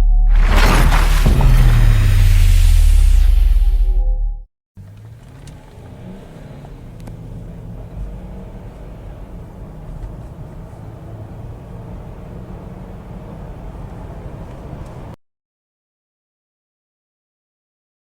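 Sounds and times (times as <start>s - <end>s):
car engine humming: 0.3s - 4.0s, 4.8s - 15.2s.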